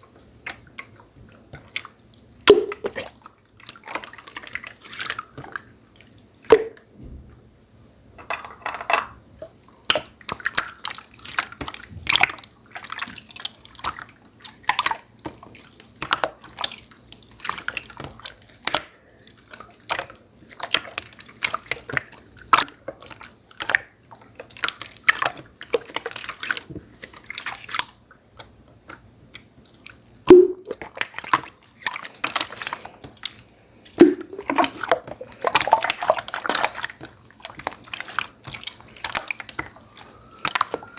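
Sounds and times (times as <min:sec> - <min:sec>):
slime plopping pops: 0:02.5 - 0:03.0, 0:30.3 - 0:30.8, 0:34.0 - 0:34.8
slime squelching and clicking: 0:09.4 - 0:40.9.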